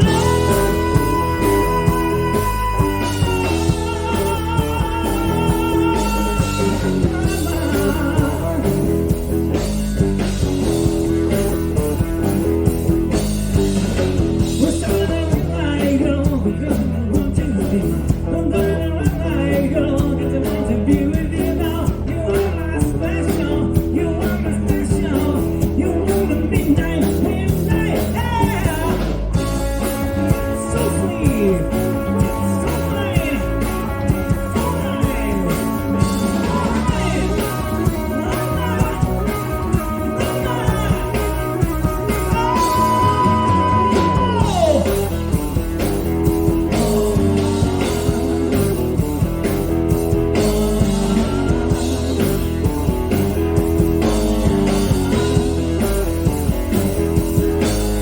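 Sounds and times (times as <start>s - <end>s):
person singing: 0.0s - 9.5s, 14.4s - 45.6s
bass guitar: 0.0s - 58.0s
electric guitar: 0.0s - 58.0s
drum beat: 26.5s - 58.0s.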